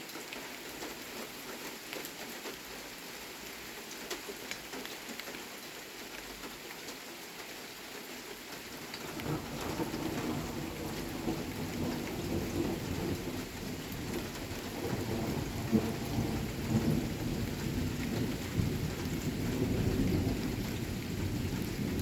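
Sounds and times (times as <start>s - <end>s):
steady rain falling: 0.0s - 22.0s
rumble of thunder: 8.7s - 22.0s.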